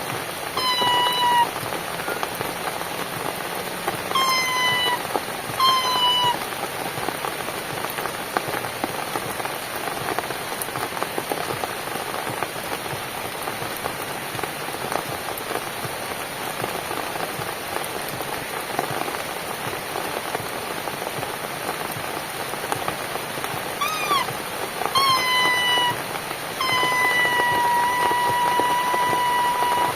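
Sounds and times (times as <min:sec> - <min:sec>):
rain falling on a cabin: 0:00.0 - 0:29.9
short pitched calls: 0:00.6 - 0:02.3, 0:04.1 - 0:06.4, 0:23.8 - 0:29.9.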